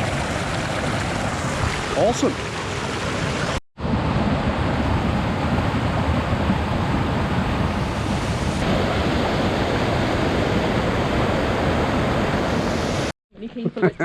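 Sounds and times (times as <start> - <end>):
waterfall rushing: 7.7 - 13.1.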